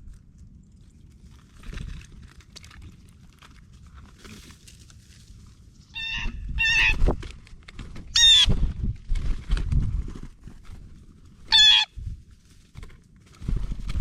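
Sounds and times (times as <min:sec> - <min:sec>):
harsh bird calls: 0:06.0 - 0:07.0, 0:11.5 - 0:11.9.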